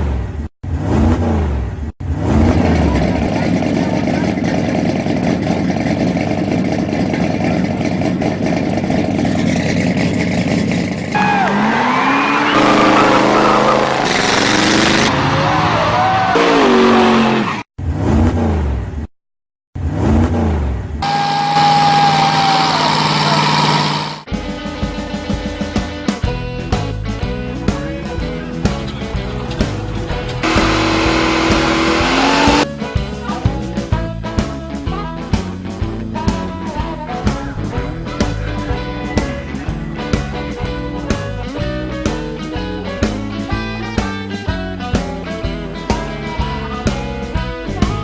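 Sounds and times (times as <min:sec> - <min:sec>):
hot rod engines revving: 0:00.0 - 0:19.1, 0:19.8 - 0:24.3, 0:27.8 - 0:32.7
rock music with guitar: 0:24.2 - 0:48.0.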